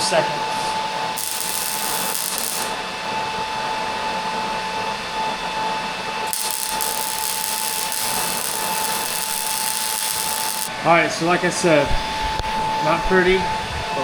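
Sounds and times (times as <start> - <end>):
machine whine with high tone: 0.4 - 4.6, 5.5 - 10.9.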